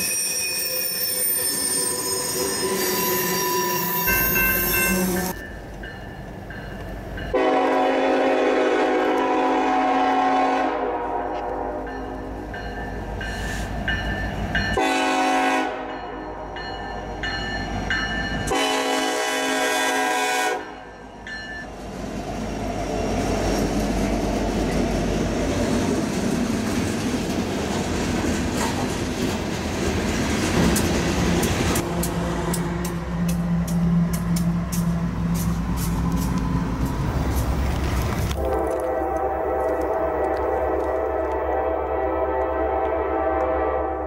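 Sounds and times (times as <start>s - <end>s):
train rumbling past: 0.0s - 44.0s
locomotive air horn blasts: 2.6s - 5.4s, 7.3s - 12.0s, 14.8s - 16.6s, 18.5s - 20.9s, 31.8s - 33.1s, 38.3s - 44.0s
wheels clicking on rails: 22.3s - 41.4s.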